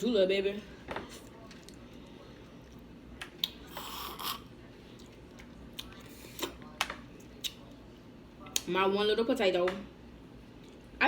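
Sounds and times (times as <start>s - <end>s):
food crackling while chewed: 1.0s - 7.9s.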